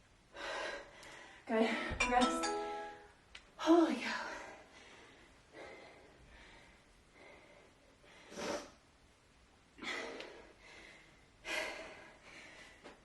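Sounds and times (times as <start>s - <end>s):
woman breathing hard: 0.3s - 2.0s, 4.0s - 8.9s, 9.7s - 13.0s.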